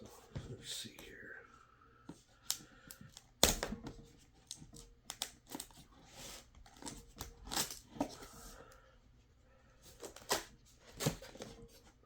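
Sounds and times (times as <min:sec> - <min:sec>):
cardboard and plastic rustling: 0:03.2 - 0:08.6, 0:09.8 - 0:12.0.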